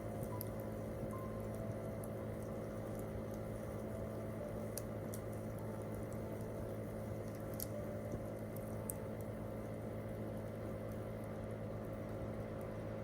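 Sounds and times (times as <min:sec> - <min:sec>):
campfire crackling and popping: 0:00.0 - 0:11.4
steady low hum: 0:00.0 - 0:13.0.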